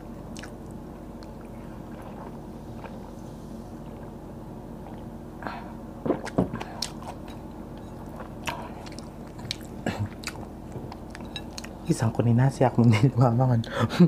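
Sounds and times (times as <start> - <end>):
low steady hum: 0.0 - 14.0
wet chewing and smacking: 0.3 - 3.1, 6.0 - 11.8.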